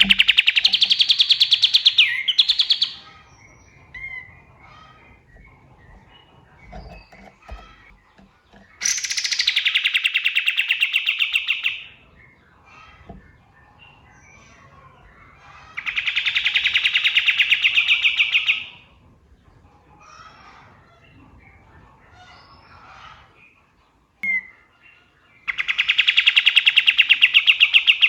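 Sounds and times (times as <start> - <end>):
songbird rapid trills: 0.0 - 11.9
faint bird chirps: 0.0 - 18.8, 20.0 - 28.0.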